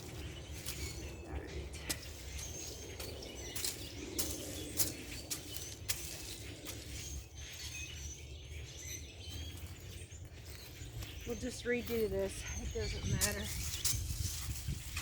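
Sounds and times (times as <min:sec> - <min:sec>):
small birds chirping: 0:00.0 - 0:15.0
garden tool scraping soil: 0:09.4 - 0:15.0.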